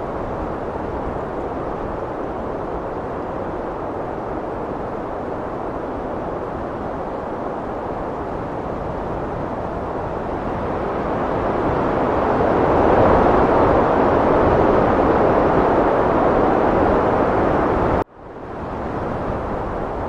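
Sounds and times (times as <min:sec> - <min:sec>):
heavy wind blowing: 0:00.0 - 0:20.0.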